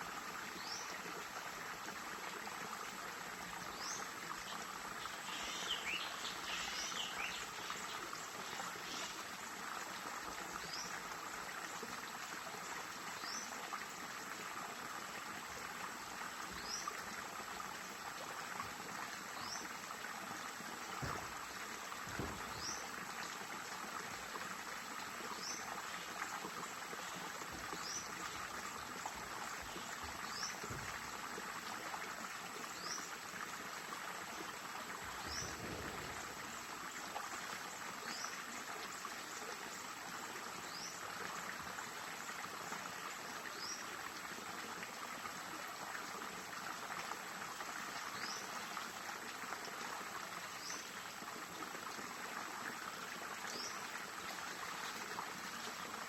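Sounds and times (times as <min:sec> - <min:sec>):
stream water trickling: 0:00.0 - 0:56.0.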